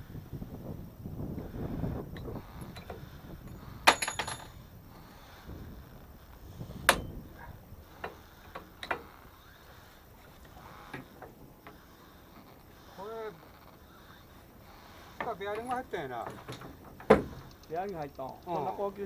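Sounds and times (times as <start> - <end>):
metallic clinks of tools: 2.2 - 4.7.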